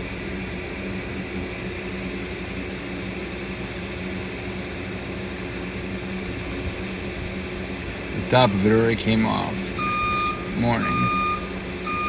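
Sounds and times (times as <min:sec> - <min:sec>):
heavy machine engine drone: 0:00.0 - 0:12.0
steady whine: 0:00.0 - 0:12.0.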